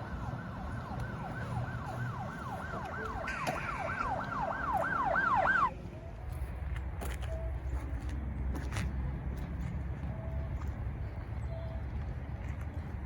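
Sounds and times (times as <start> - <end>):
siren yelping: 0.0 - 5.8.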